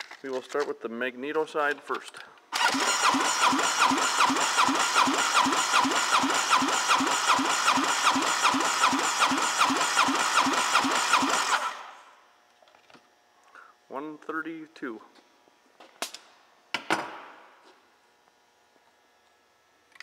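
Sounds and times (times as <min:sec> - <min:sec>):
engine cranking by starter: 0:02.5 - 0:12.1.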